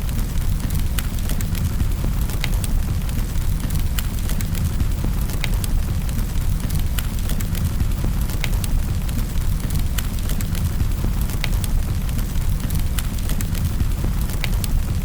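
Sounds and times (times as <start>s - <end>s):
fire pops and snaps: 0.0s - 15.0s
low rumble of flames: 0.0s - 15.0s.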